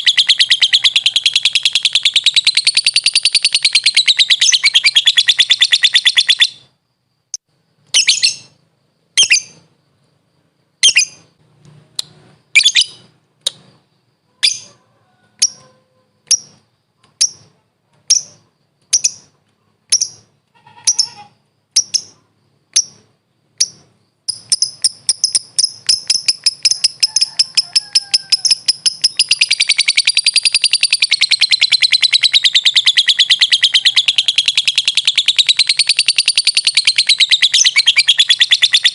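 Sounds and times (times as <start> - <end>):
lovebird chattering and chirping: 0.0 - 8.6, 9.2 - 9.7, 10.8 - 11.4, 12.0 - 14.8, 15.4 - 38.9.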